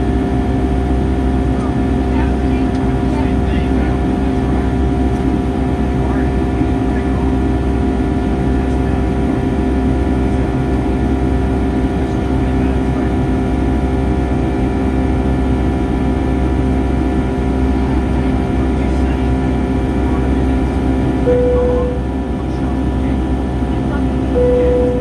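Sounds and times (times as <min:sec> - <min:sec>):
aircraft engine drone: 0:00.0 - 0:25.0
airflow rumble: 0:00.0 - 0:25.0
steady engine tones: 0:00.0 - 0:25.0.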